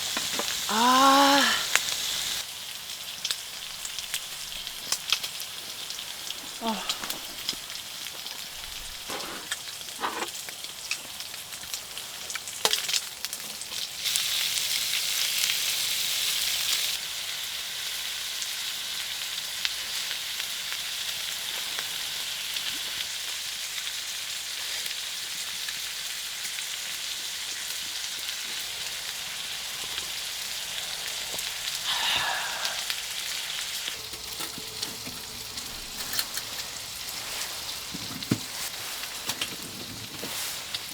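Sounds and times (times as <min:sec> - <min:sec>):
food sizzling in a pan: 0:00.0 - 0:40.9
pan scrape: 0:09.0 - 0:10.3.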